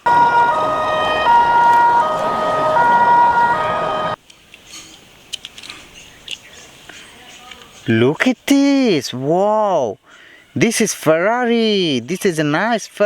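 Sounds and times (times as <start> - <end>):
electronic two-tone siren: 0.0 - 4.2.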